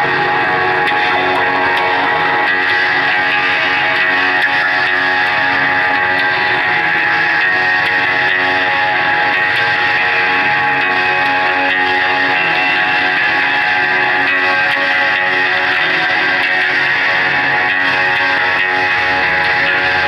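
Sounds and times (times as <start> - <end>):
live band with guitar: 0.0 - 20.0.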